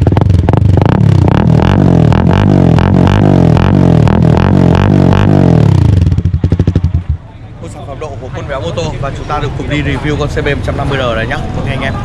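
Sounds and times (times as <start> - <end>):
motorcycle engine revving: 0.0 - 7.3.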